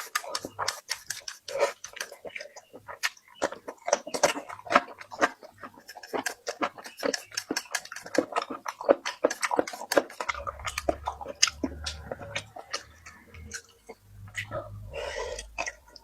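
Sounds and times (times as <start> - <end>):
person chewing and lip-smacking: 0.0 - 16.0
low hum: 10.3 - 16.0.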